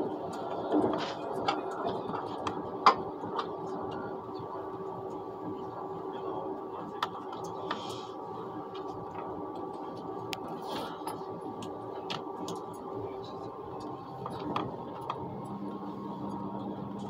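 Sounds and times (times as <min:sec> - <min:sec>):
train cabin running noise: 0:00.0 - 0:17.0.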